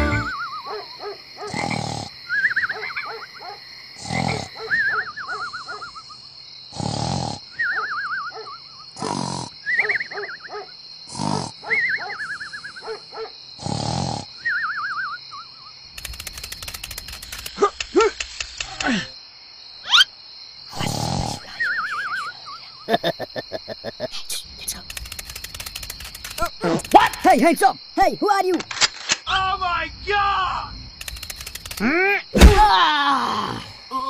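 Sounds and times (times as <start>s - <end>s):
cartoon rasping snores: 1.5s - 2.2s, 4.0s - 4.7s, 6.7s - 7.6s, 9.0s - 9.6s, 11.1s - 11.6s, 13.6s - 14.4s, 20.7s - 22.2s
rapid run of clicks: 16.0s - 18.8s, 24.8s - 27.4s, 31.0s - 31.8s.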